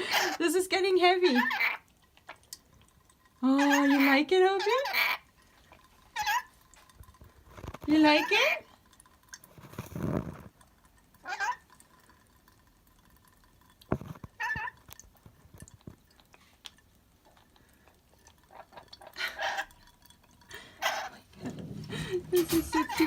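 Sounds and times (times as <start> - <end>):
parrot calls: 0.0 - 0.4, 1.3 - 1.8, 3.6 - 5.2, 6.2 - 6.5, 11.2 - 11.6, 18.5 - 19.7, 20.8 - 21.2.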